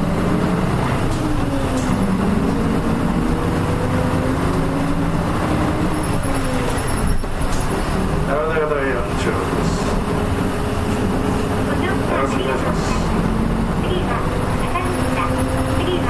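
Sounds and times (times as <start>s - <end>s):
bus engine accelerating: 0.0s - 16.0s.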